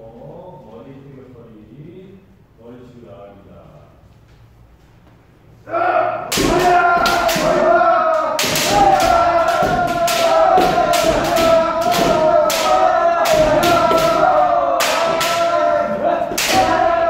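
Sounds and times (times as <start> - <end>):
people shouting: 5.6 - 17.0.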